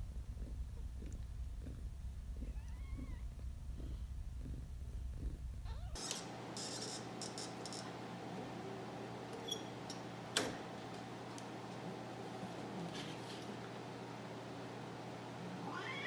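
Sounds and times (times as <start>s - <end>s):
cat purring: 0.0s - 6.0s.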